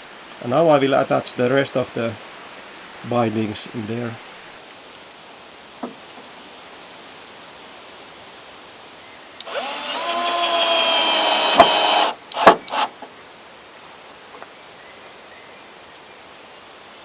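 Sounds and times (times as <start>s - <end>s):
power drill driving screw: 9.4s - 13.0s
sharp knocks: 11.4s - 13.0s.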